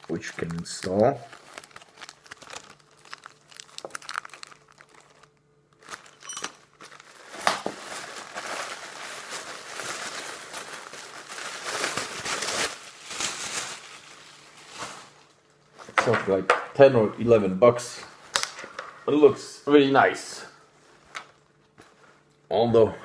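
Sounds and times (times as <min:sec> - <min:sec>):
plastic packaging crinkling: 0:00.0 - 0:16.4, 0:17.8 - 0:19.0.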